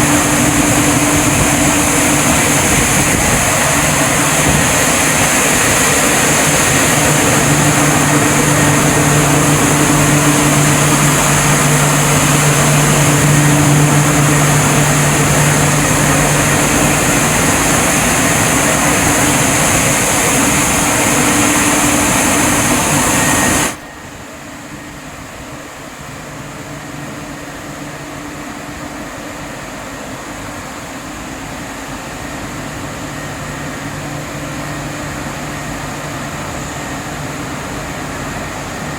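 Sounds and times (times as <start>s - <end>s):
high-pressure water jets hissing: 0.0s - 23.8s
pump hum: 0.0s - 38.9s.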